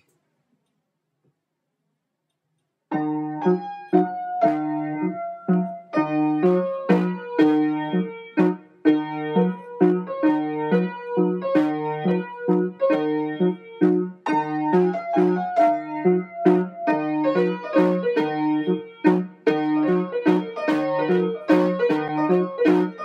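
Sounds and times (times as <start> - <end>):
bouncy piano music: 2.9 - 23.0.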